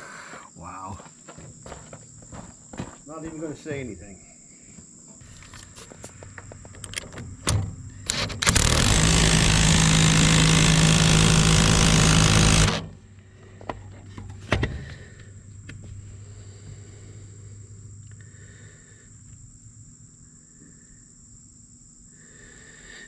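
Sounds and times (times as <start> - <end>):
power tool humming: 7.5 - 13.0.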